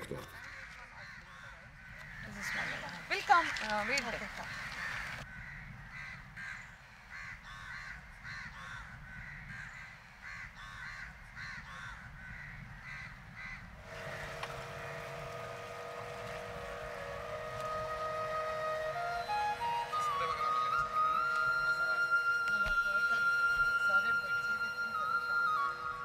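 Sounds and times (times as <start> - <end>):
crows cawing: 0.2 - 17.6, 18.7 - 26.0
flute music with long held notes: 13.8 - 26.0.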